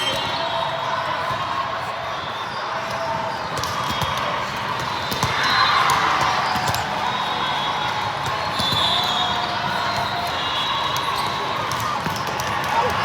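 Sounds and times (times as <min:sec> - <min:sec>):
crowd chatter: 0:00.0 - 0:13.0
crowd cheering: 0:00.0 - 0:13.0
volleyballs bouncing and struck: 0:03.4 - 0:07.1, 0:07.9 - 0:13.0.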